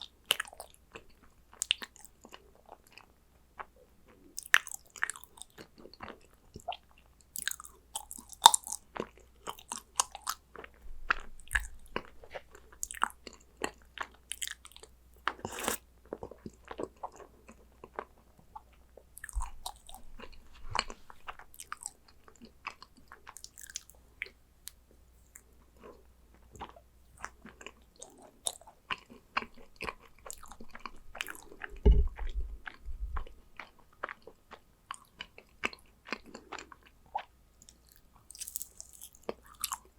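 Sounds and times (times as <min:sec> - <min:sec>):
biting and chewing cookies: 0:00.0 - 0:39.9
dull low bump: 0:31.8 - 0:33.3.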